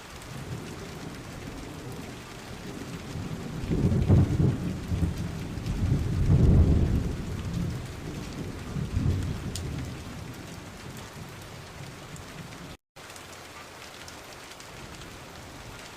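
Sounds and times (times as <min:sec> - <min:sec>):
steady rain: 0:00.0 - 0:15.9
low rolls of thunder: 0:00.2 - 0:12.8.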